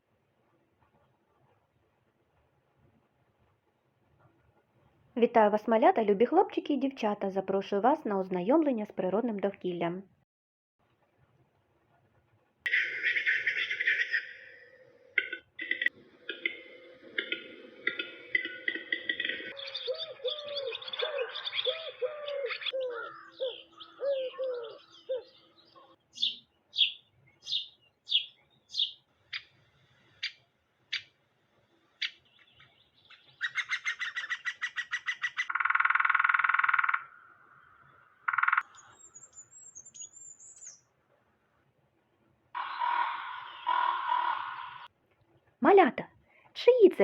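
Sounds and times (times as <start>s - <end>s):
birds chirping: 15.6s - 40.9s, 42.6s - 44.9s
harsh bird calls: 17.1s - 31.1s, 32.0s - 40.8s, 42.6s - 44.9s.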